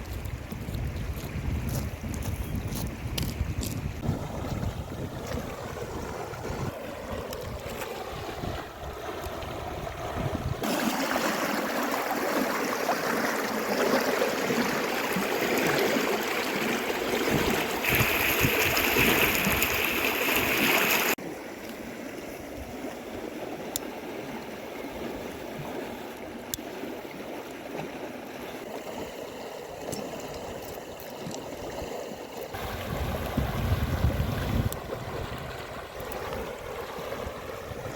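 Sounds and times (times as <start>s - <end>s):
wind buffeting microphone: 0.0s - 10.6s, 16.9s - 21.1s, 32.5s - 37.9s
river water rushing: 10.6s - 21.2s.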